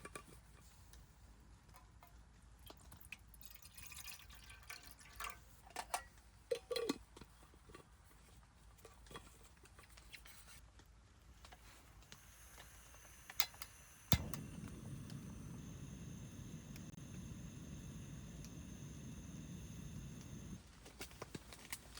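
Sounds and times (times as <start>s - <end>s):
quiet liquid sounds: 1.7s - 7.8s.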